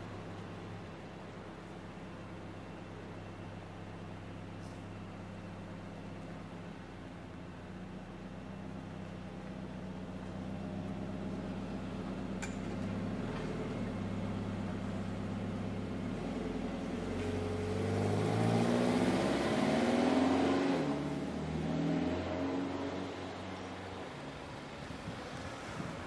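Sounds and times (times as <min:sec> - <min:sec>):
vehicle engine accelerating: 0:10.2 - 0:26.0.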